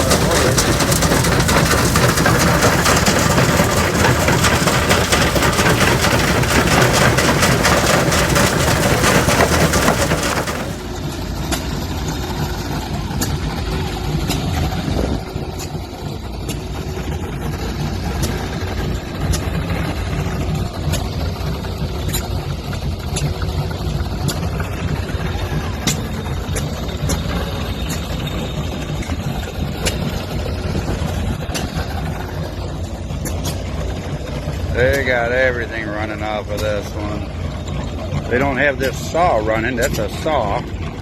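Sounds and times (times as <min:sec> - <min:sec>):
old machinery engines clattering: 0:00.0 - 0:11.0.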